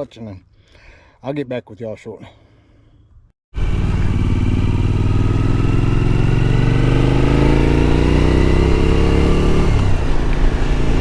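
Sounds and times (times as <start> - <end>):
motorcycle engine accelerating: 3.6 - 11.0.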